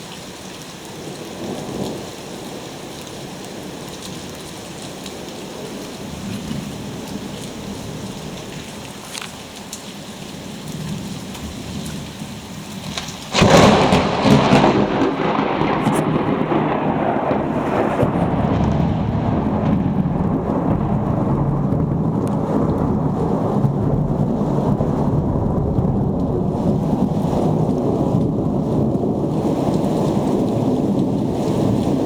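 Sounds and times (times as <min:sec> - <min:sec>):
rain falling: 0:00.0 - 0:32.0
thunderclap with low rumble: 0:10.7 - 0:32.0.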